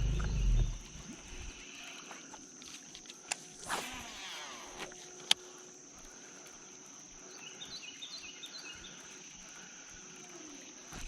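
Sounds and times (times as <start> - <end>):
bird chirping: 0.0 - 1.1, 7.2 - 9.2
high-pitched insect drone: 0.0 - 11.0.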